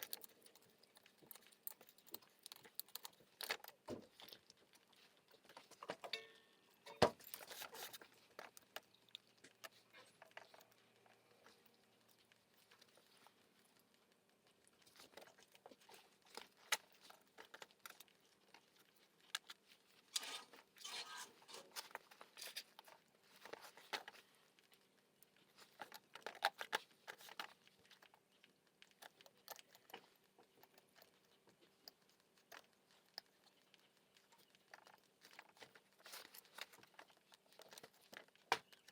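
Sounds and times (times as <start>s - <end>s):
metal tools clicking and clinking: 6.0s - 7.9s.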